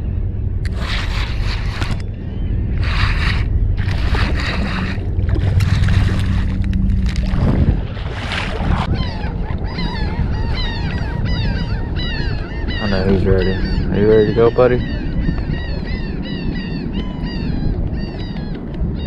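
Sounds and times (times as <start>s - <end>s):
wind and water rushing: 0.0s - 19.0s
flock of birds calling: 8.8s - 19.0s.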